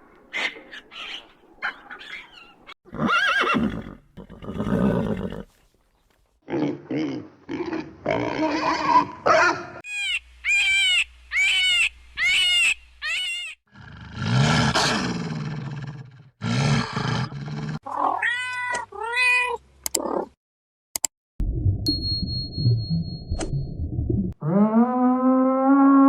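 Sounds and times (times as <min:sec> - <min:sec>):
short arching high animal calls: 0:09.8 - 0:13.6.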